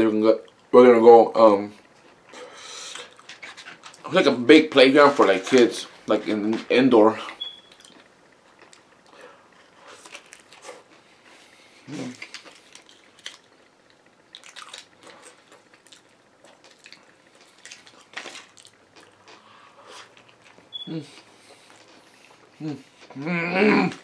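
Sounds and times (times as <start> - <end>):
person chewing: 7.4 - 24.0.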